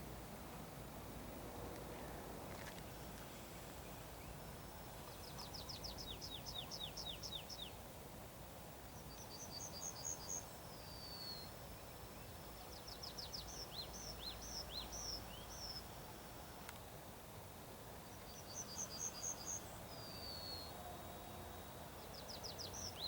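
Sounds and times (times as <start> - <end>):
songbird singing: 1.9 - 7.8, 8.9 - 16.0, 18.0 - 23.0.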